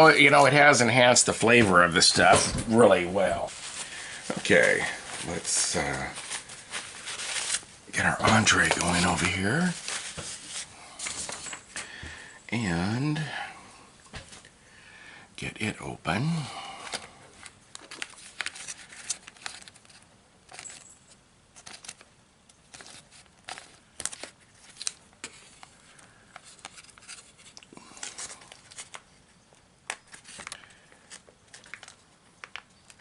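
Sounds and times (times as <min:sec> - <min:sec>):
foil pouch crinkling: 0:03.2 - 0:11.8, 0:16.8 - 0:33.0.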